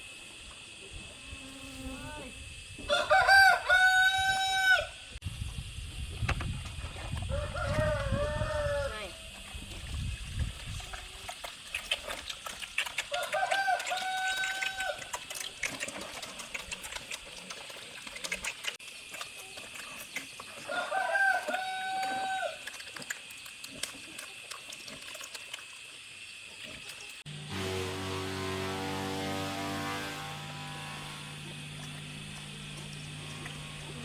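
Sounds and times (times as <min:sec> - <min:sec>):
rooster crowing: 0:02.9 - 0:05.0, 0:07.3 - 0:09.0, 0:13.1 - 0:15.0, 0:20.7 - 0:22.6.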